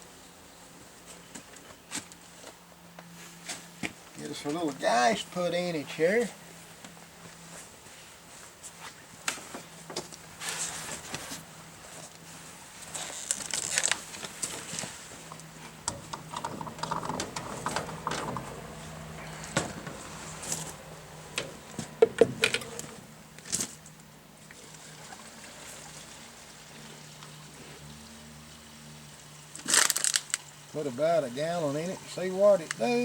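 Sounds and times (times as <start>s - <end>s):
fuel pouring from a can: 24.4s - 28.1s, 29.4s - 30.8s.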